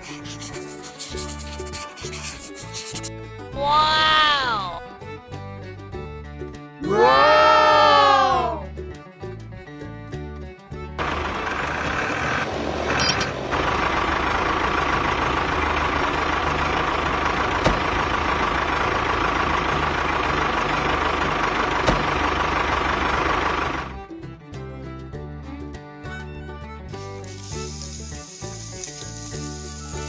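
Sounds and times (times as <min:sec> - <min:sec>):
engine running with whine: 0:11.0 - 0:24.1.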